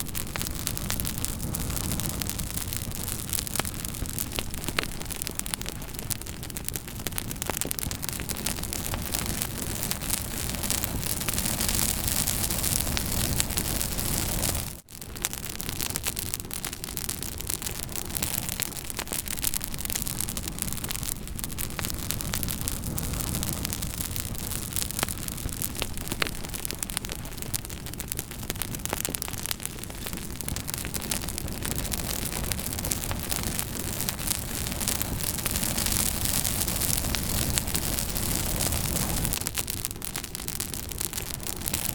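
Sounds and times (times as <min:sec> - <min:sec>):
hiss of flames: 0:00.0 - 0:41.9
wood crackling and popping: 0:00.0 - 0:41.9.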